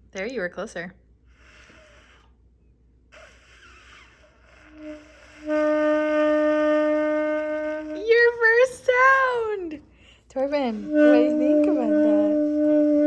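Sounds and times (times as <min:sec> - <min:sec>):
wind instrument held note: 0:03.2 - 0:08.6, 0:10.7 - 0:13.0.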